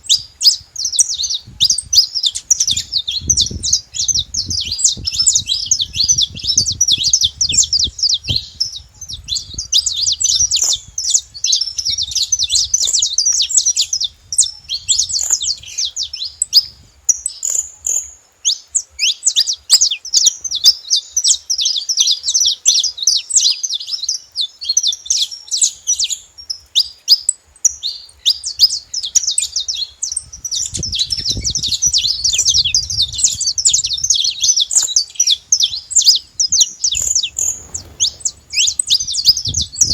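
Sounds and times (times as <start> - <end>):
finches chirping and trilling: 0.0 - 39.9
low rumble: 35.6 - 39.9.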